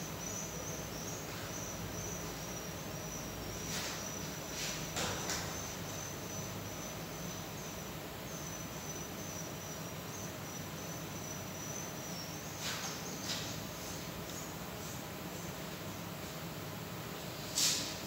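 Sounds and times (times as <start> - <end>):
insect trilling: 0.0 - 13.2.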